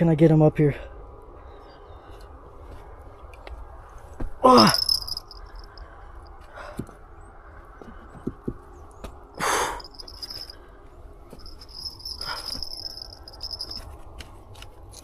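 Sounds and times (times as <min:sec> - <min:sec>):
insects trilling: 0:04.6 - 0:05.8, 0:11.4 - 0:13.8.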